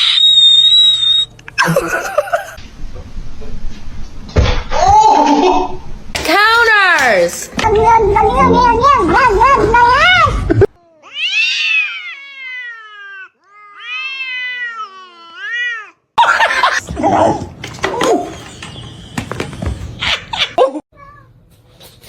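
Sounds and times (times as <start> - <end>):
cat meowing: 11.0 - 15.9.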